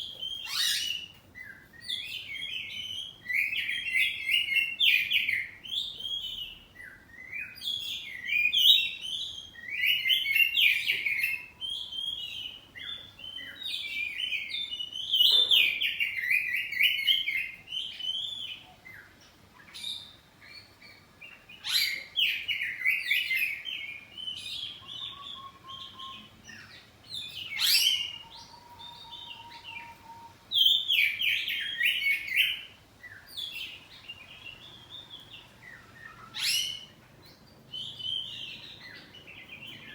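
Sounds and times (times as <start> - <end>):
bird warbling song: 0.0 - 39.9.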